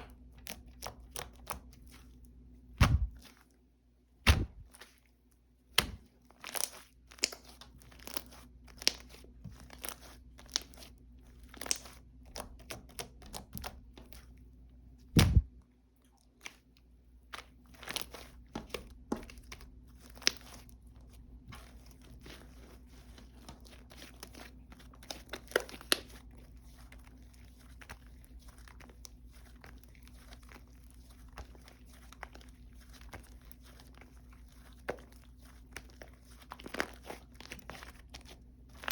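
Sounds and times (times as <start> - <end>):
slime squishing and crackling: 0.0 - 3.6, 4.2 - 14.4, 16.3 - 38.9
thuds: 2.8 - 3.2, 4.3 - 4.6, 15.2 - 15.5.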